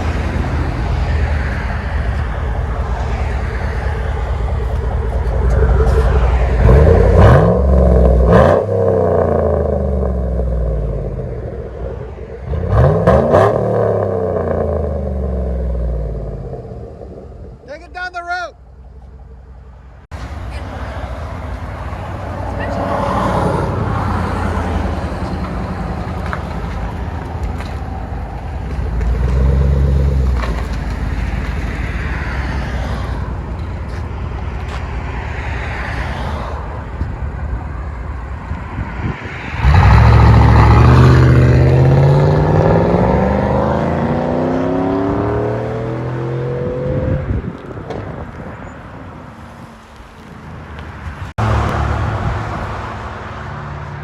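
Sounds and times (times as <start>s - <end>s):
car engine revving and accelerating: 0.0s - 17.6s, 28.7s - 30.8s, 39.5s - 47.6s.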